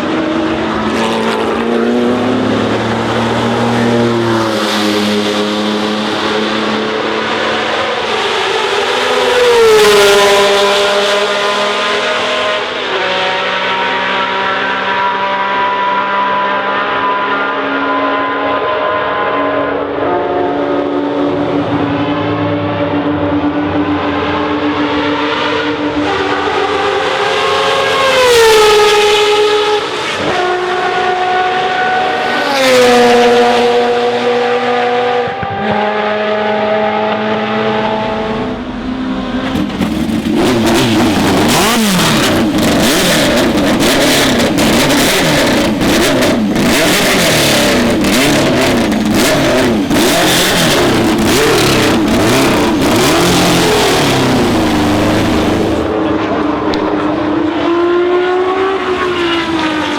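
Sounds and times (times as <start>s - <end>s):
engine downshifting: 0.0s - 59.9s
racing car engines roaring: 0.0s - 59.9s
sharp engine cracks: 39.4s - 46.8s.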